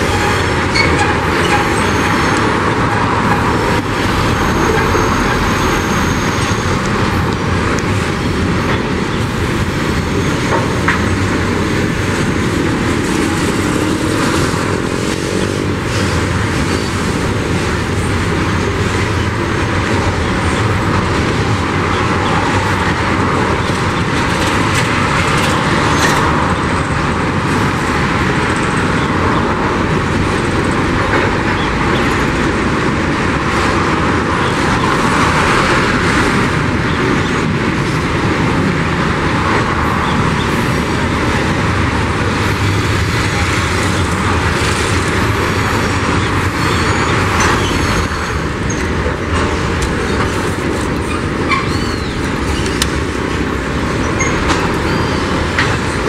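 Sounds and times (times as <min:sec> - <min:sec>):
freight train wheels on rail: 0:00.0 - 0:56.0
faint high wheel squeal: 0:04.2 - 0:06.8, 0:45.5 - 0:48.8, 0:51.5 - 0:52.8, 0:54.2 - 0:55.5.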